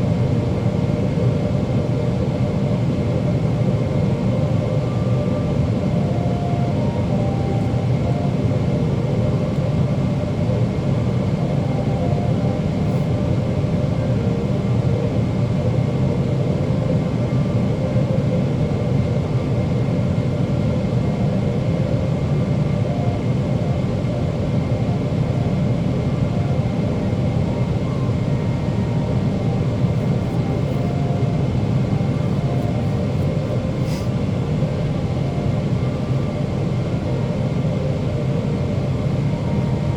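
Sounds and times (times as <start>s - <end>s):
aircraft cabin engine rumble: 0.0s - 39.9s
thin steady whine: 0.0s - 39.9s
airflow over fuselage: 24.1s - 39.4s.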